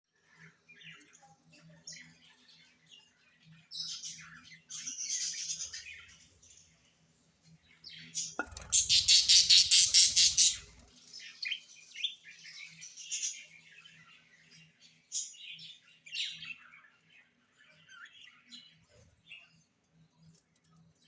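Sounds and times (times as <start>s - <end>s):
parrots chirping: 8.4s - 10.9s.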